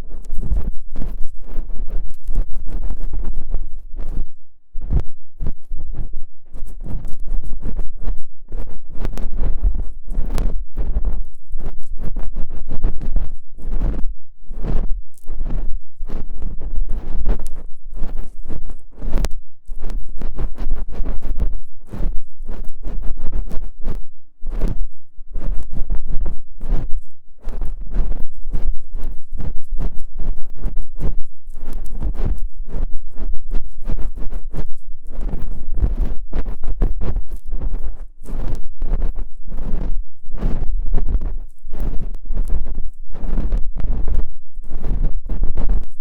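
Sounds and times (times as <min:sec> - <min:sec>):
ear pick scraping microphone: 0:00.0 - 0:46.0
ear-cleaning tool scratching: 0:25.4 - 0:46.0.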